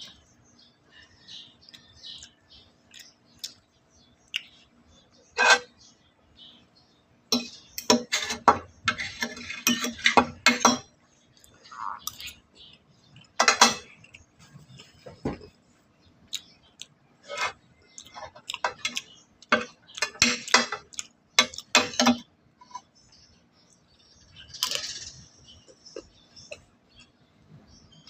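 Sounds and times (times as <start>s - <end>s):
utensils clinking against dishes: 7.3s - 10.9s, 13.3s - 14.1s, 17.3s - 22.3s.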